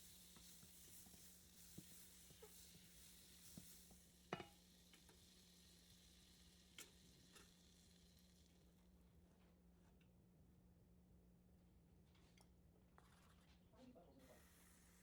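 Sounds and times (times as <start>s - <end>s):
food sizzling in a pan: 0.0s - 9.0s, 14.2s - 15.0s.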